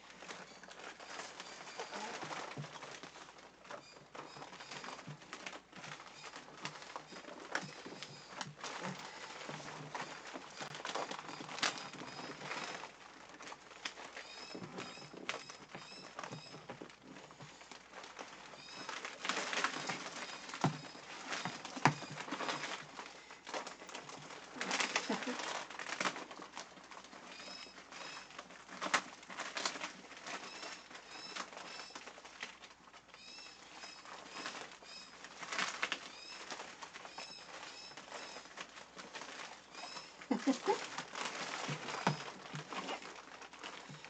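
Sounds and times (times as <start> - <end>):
plastic poncho rustling: 0.0 - 44.0
small birds chirping: 33.1 - 43.1.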